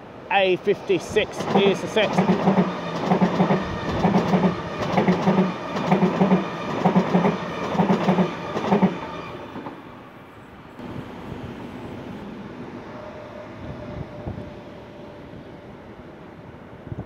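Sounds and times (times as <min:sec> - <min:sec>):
train wheels clattering over track: 0:01.0 - 0:09.0.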